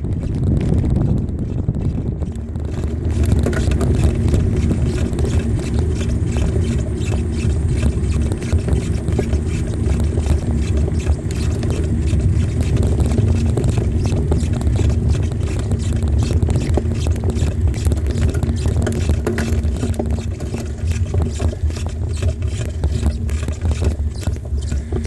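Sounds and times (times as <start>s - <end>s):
bicycle clicks and rattles: 0.0s - 25.0s
wind buffeting microphone: 0.0s - 25.0s.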